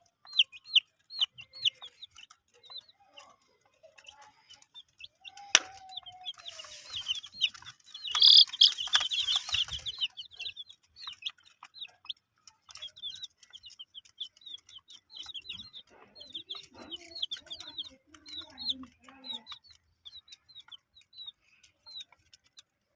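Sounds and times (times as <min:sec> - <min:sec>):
baby chicks peeping: 0:00.0 - 0:22.9.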